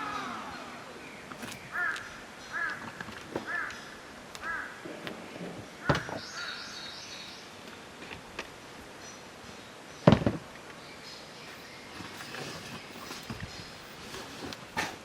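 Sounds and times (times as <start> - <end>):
crow cawing: 1.7 - 4.9, 5.8 - 6.7.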